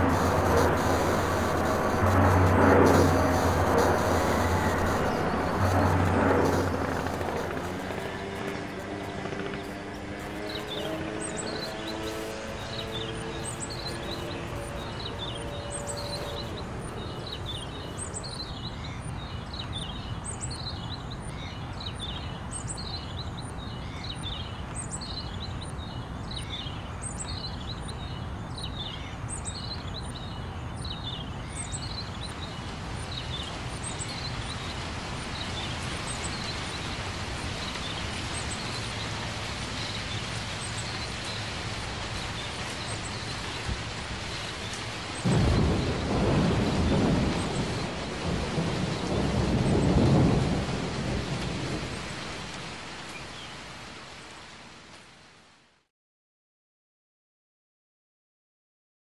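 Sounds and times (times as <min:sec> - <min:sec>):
steady rushing noise: 0:00.0 - 0:20.7, 0:31.3 - 0:54.0
birds chirping: 0:00.0 - 0:52.4.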